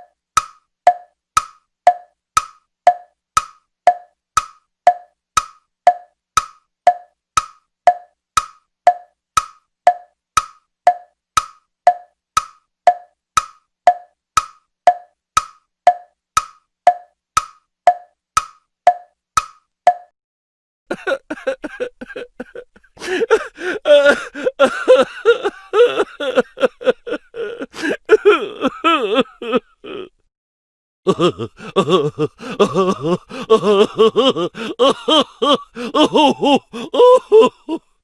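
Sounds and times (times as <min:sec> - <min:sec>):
clock ticking: 0:00.0 - 0:20.1.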